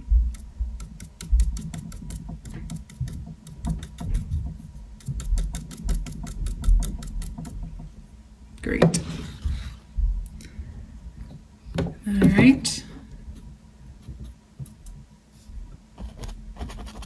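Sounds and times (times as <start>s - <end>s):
paintbrush dabbing on canvas: 0.0s - 7.9s, 13.3s - 15.1s.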